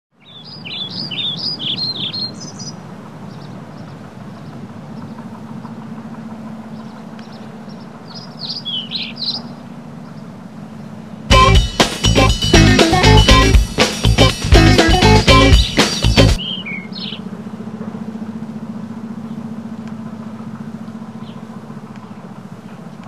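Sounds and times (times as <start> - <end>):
birds chirping: 0.2 - 23.0
steady low rumble: 9.6 - 23.0.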